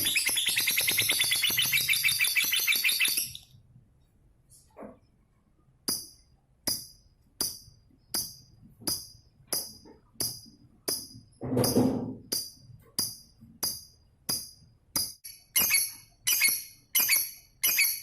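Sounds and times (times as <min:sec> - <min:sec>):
lovebird chattering trill: 0:00.0 - 0:03.5.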